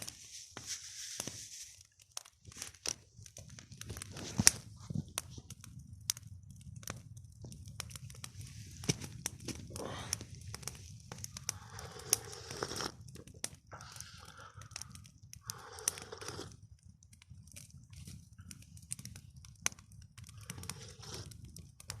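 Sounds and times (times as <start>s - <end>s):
rustling or crunching: 0.0s - 5.5s, 20.4s - 21.4s
wood campfire crackling: 0.0s - 22.0s.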